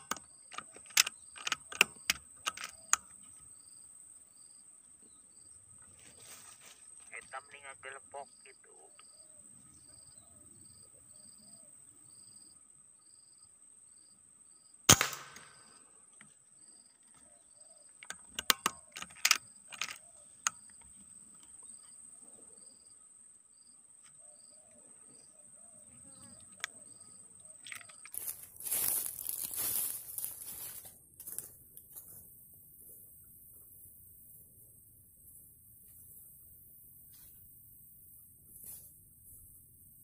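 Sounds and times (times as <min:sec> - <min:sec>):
sharp clicks and knocks: 0:00.0 - 0:03.1, 0:18.0 - 0:20.6
air rifle firing: 0:14.9 - 0:15.8
high insect trill: 0:25.9 - 0:40.0.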